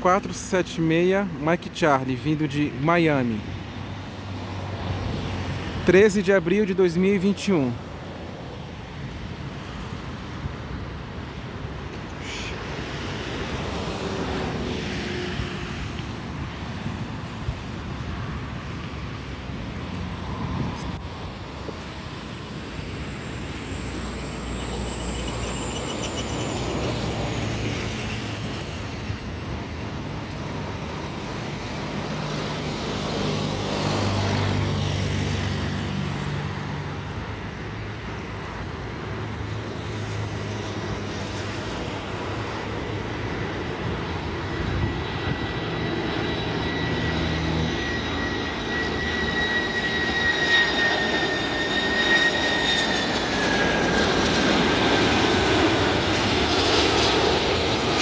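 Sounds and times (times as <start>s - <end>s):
jet engines whining: 0.0s - 10.0s, 18.6s - 35.8s, 39.8s - 58.0s
road traffic rumble: 0.0s - 58.0s.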